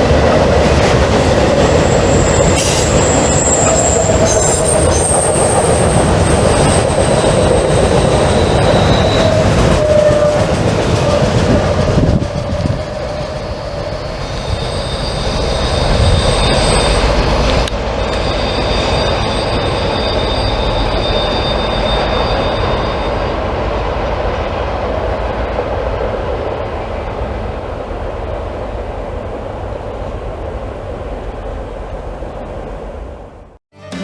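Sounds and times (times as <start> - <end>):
train cars rolling on rails: 0.0 - 33.6
high-pitched wheel squeal: 1.7 - 11.2, 12.5 - 23.4.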